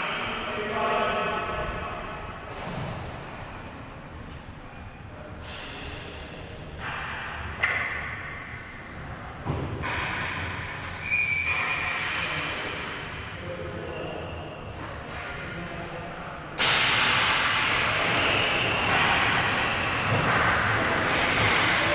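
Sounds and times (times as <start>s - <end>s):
short high-pitched squeaks: 3.4s - 4.8s
sharp knocks: 16.6s - 21.9s.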